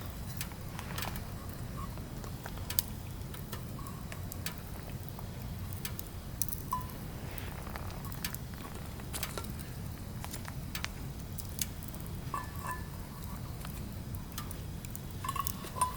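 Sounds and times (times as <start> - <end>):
firewood crackling and popping: 0.0 - 15.9
low fire rumble: 0.0 - 15.9.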